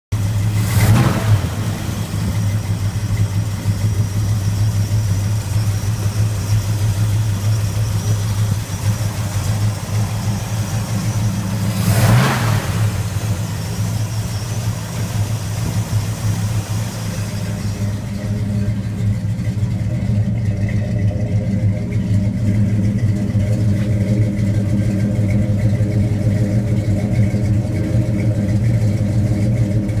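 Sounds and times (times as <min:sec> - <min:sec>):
car engine idling: 0:00.1 - 0:30.0
engine revving bursts: 0:00.4 - 0:02.7, 0:07.0 - 0:18.4.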